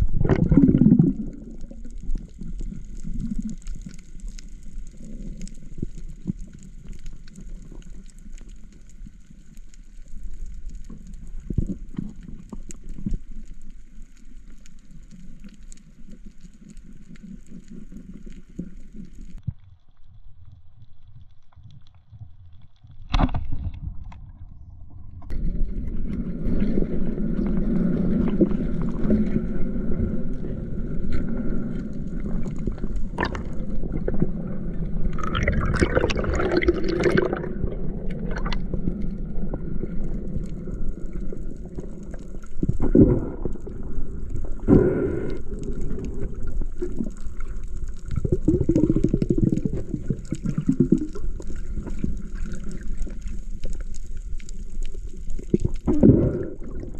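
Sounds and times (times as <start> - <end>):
bubbling surges: 0.0 - 8.8, 25.3 - 56.9
water sloshing and gurgling: 0.0 - 9.4, 23.0 - 56.9.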